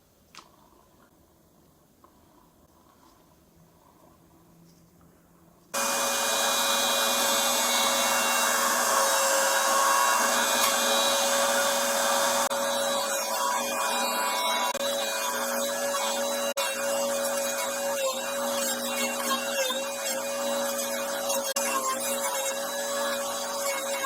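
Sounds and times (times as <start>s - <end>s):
electric fan motor running: 5.8s - 16.5s.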